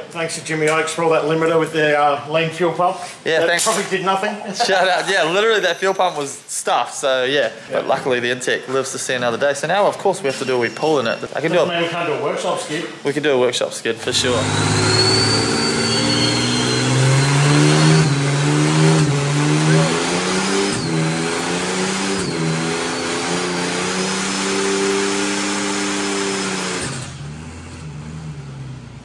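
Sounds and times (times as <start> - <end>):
tyres squealing: 14.0 - 24.0
car engine revving high: 14.0 - 29.0.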